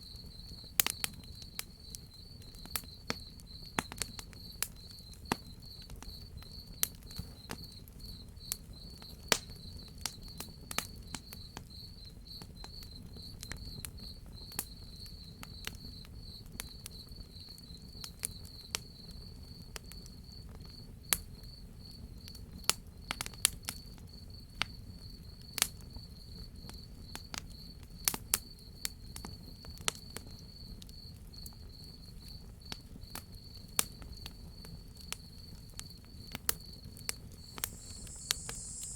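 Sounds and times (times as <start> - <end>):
crickets chirping: 37.4 - 38.9
wood fire crackling: 37.5 - 38.9.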